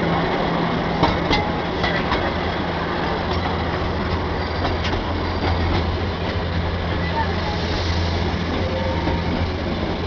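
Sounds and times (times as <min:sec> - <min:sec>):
small train rumbling: 0:00.0 - 0:10.0
train wheel clicks: 0:01.0 - 0:02.5, 0:03.2 - 0:06.5.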